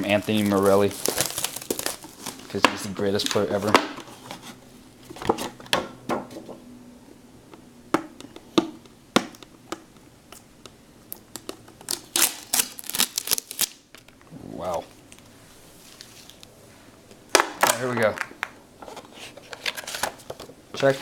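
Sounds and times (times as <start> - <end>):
wrapper crinkling and rustling: 0.0 - 3.7, 11.9 - 13.8.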